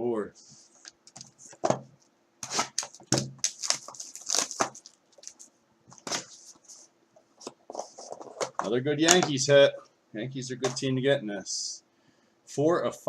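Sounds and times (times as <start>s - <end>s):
plastic wrapping crinkling: 2.4s - 6.8s
cardboard packaging rustling: 2.4s - 9.4s.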